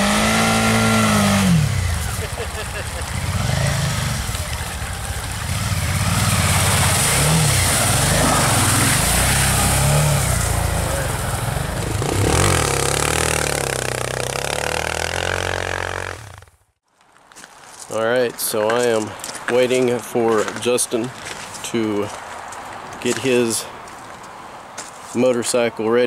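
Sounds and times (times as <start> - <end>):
vehicle engine revving: 0.0 - 16.6.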